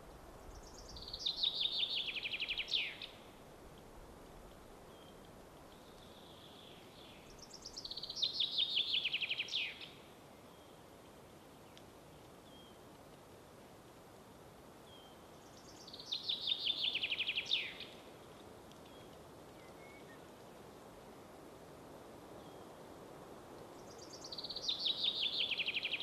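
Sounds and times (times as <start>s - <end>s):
songbird singing: 0.0s - 3.4s, 4.9s - 12.8s, 14.8s - 20.7s, 22.4s - 22.8s, 23.6s - 26.0s
soft hiss: 0.0s - 26.0s.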